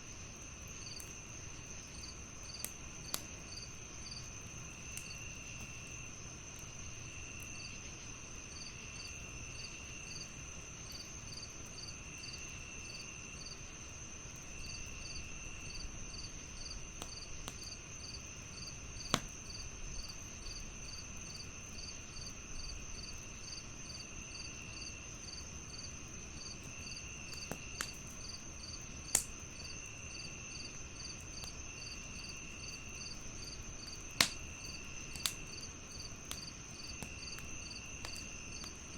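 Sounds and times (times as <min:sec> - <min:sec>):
crickets chirping: 0:00.0 - 0:38.9
wood fire crackling pops: 0:01.9 - 0:07.6, 0:14.3 - 0:21.6, 0:25.4 - 0:38.9.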